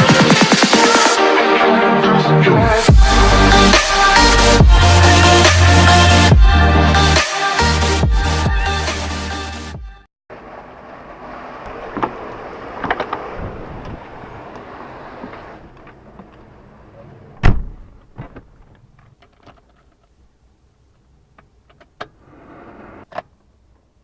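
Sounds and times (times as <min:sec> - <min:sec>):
car door shutting: 0:17.4 - 0:18.5.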